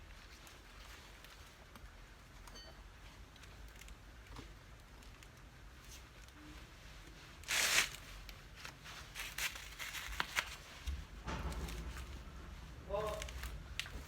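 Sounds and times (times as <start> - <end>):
low rumble: 10.9 - 14.0.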